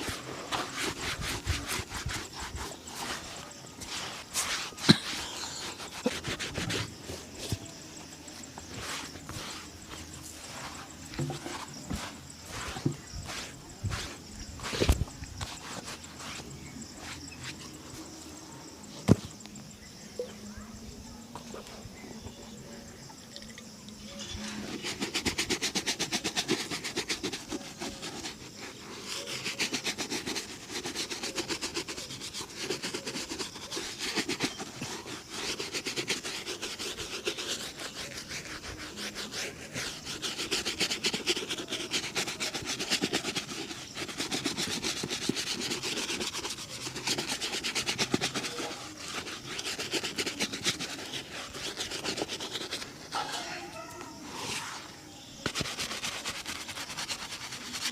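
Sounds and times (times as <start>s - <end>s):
shoe polishing rubbing strokes: 0.0s - 19.4s, 24.2s - 57.9s.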